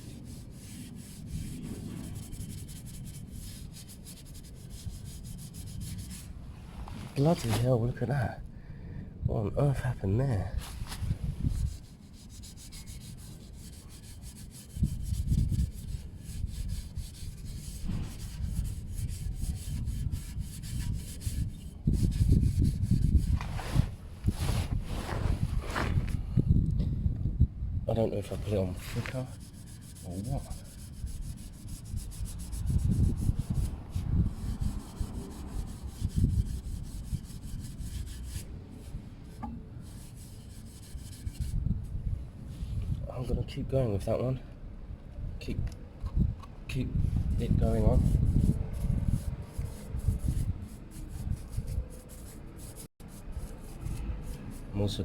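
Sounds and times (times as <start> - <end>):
scouring pad scrubbing metal pipe: 28.5 - 38.8.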